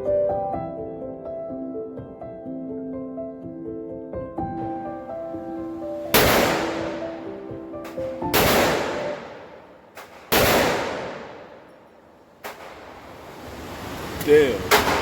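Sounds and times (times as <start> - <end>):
background music: 0.0 - 9.8
faint gunshots: 6.1 - 12.9
pistol shots with echo: 6.1 - 12.9.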